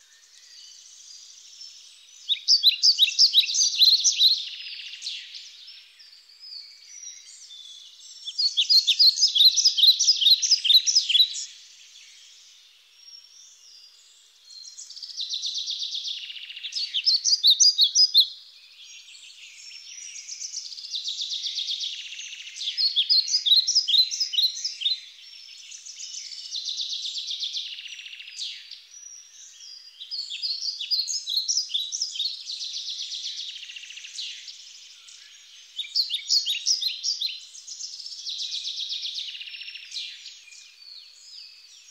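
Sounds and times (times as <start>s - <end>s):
songbird chirping and trilling: 0.0s - 41.9s.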